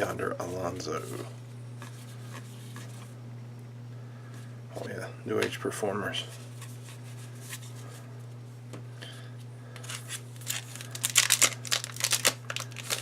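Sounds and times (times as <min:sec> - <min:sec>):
low electrical hum: 0:00.0 - 0:13.0
wrapper tearing and crinkling: 0:09.8 - 0:13.0.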